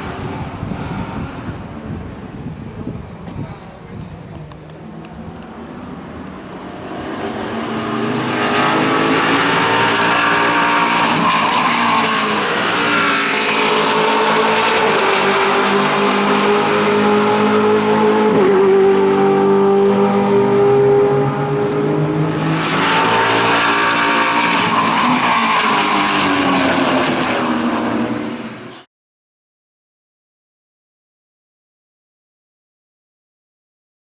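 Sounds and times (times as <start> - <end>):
race car engine at high revs: 4.4 - 28.9.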